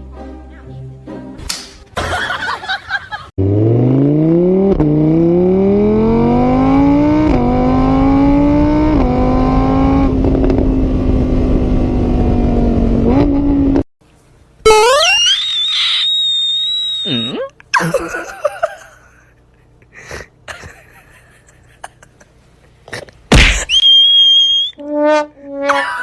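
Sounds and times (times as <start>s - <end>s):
vehicle engine accelerating: 3.4s - 13.9s.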